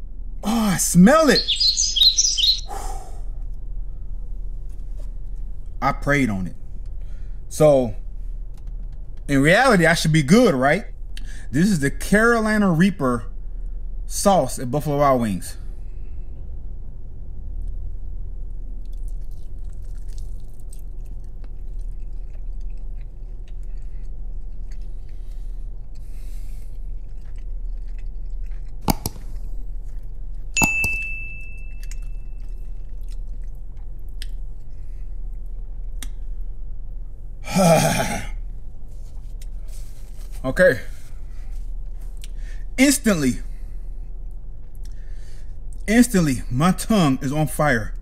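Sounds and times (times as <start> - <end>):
low hum in car cabin: 0.0 - 48.0
man exhaling hard: 2.7 - 3.3
man chewing: 18.7 - 30.6, 31.7 - 36.6, 38.7 - 42.5
brief ringing tone: 30.6 - 32.4.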